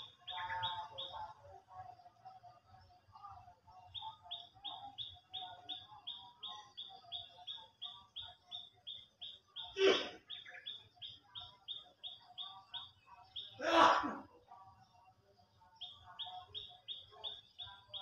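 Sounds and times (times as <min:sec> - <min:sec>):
bird repeating high falling chirp: 0:00.0 - 0:01.3, 0:03.8 - 0:14.3
lower bird chirps: 0:00.0 - 0:18.0.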